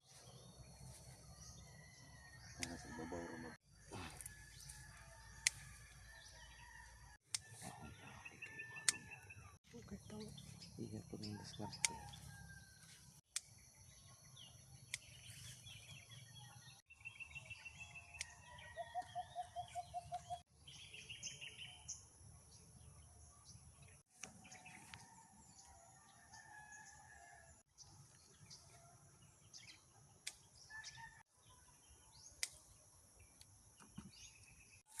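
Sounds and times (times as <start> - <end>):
rooster crowing: 1.7 - 9.4, 18.4 - 19.7
small birds chirping: 7.4 - 12.7, 13.3 - 25.7, 29.5 - 35.0.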